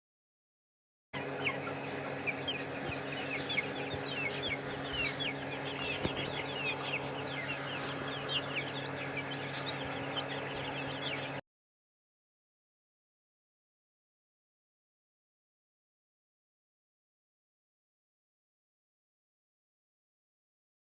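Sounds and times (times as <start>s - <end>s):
chicks peeping: 1.2s - 11.4s
steady low hum: 1.2s - 11.4s.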